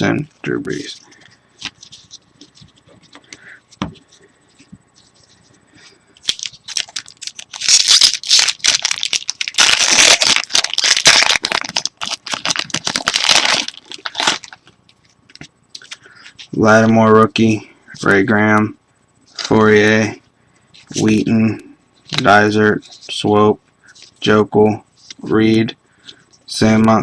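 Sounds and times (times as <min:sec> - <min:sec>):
wrapper tearing and crinkling: 0:06.2 - 0:14.6.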